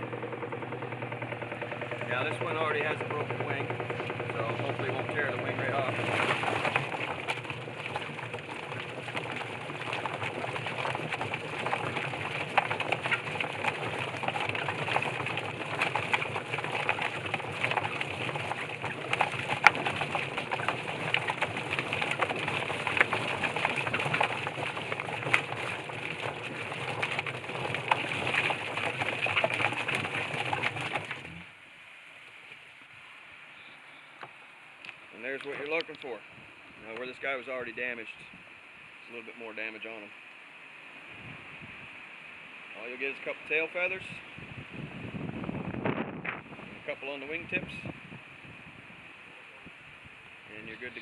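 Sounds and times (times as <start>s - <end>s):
rubber fingers rattling clatter: 0.0s - 31.4s
motor humming: 0.0s - 31.5s.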